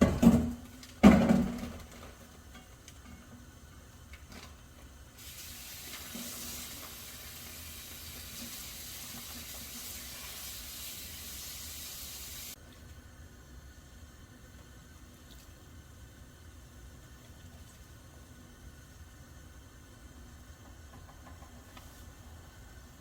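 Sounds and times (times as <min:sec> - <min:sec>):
kitchen tap running: 0:05.2 - 0:12.6.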